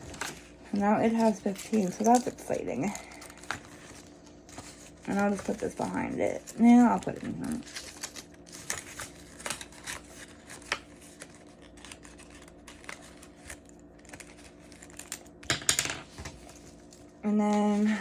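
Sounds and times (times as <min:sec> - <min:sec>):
paper rustling: 0:00.0 - 0:15.4, 0:16.1 - 0:18.0
faint steady hum: 0:00.0 - 0:18.0
clicks of cash and envelopes: 0:07.2 - 0:16.7.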